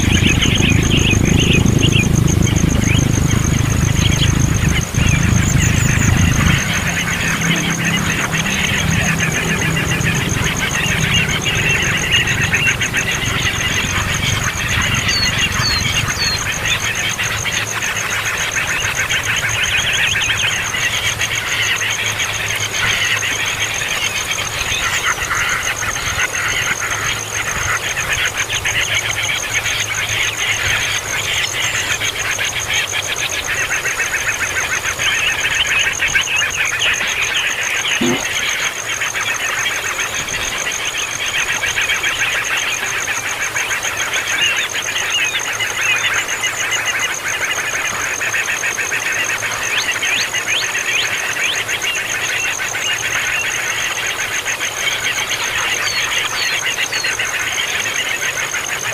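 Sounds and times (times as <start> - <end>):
baby birds chirping: 0.0 - 21.3, 34.8 - 38.7
steady high whine: 0.0 - 58.9.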